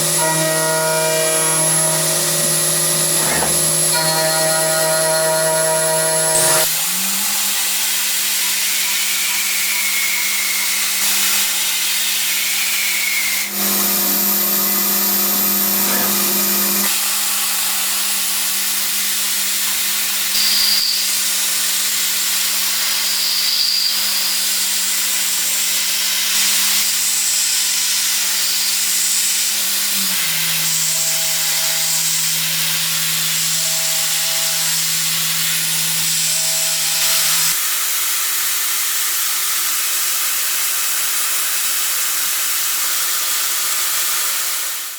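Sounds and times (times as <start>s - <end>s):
machine tool cutting metal: 0.0s - 13.4s, 15.8s - 19.8s, 28.0s - 37.6s.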